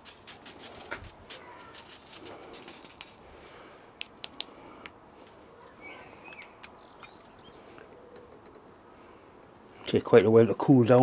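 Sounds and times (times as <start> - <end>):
background hiss: 0.0 - 11.0
bird chirps: 5.7 - 8.7.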